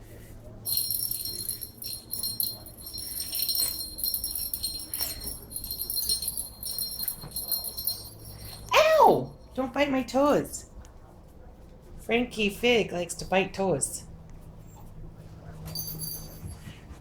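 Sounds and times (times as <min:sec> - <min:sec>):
small metal bell jingling: 0:00.7 - 0:09.6, 0:15.7 - 0:16.8.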